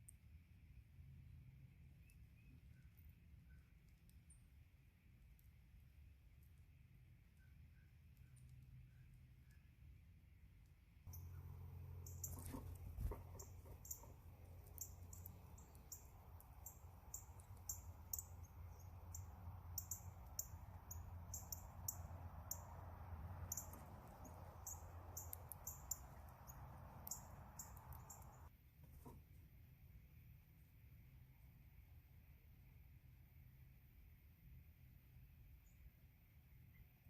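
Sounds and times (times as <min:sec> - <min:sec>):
low steady hum: 0:00.0 - 0:28.7
birds high chip notes: 0:11.1 - 0:28.5.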